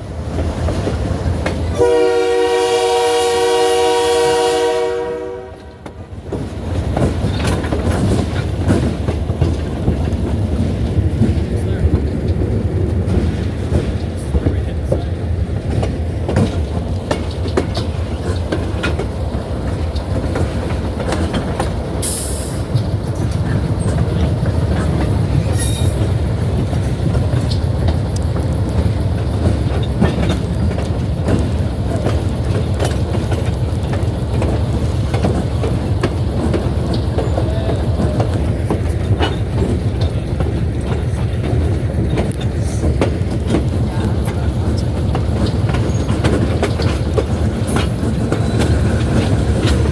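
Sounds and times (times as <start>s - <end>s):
train rumbling: 0.0s - 49.9s
wheels clicking over rails: 0.2s - 1.9s, 5.7s - 49.9s.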